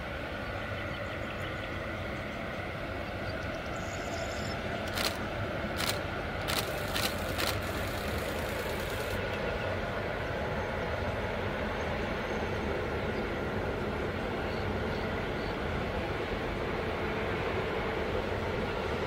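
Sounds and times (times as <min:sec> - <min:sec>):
distant train engine and wheels: 0:00.0 - 0:19.0
sharp clicks: 0:04.8 - 0:05.2, 0:05.8 - 0:09.2.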